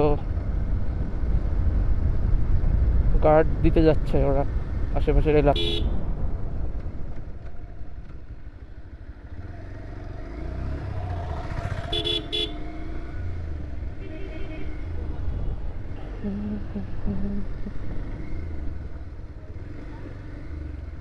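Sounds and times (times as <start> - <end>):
motorcycle engine and road rumble: 0.0 - 21.0
vehicle horn honking: 5.6 - 6.0, 11.9 - 12.6, 14.0 - 14.8.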